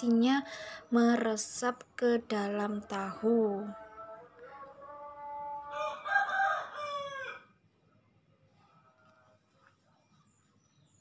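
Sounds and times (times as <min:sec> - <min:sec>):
faint bird chirps: 0:08.6 - 0:11.0.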